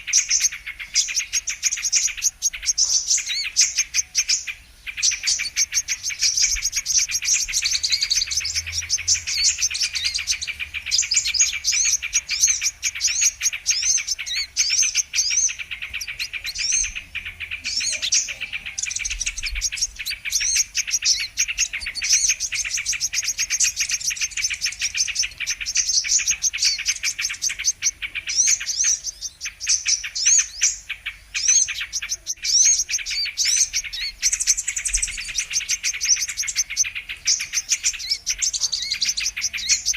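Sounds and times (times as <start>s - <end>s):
bird chirping and twittering: 0.0s - 39.9s.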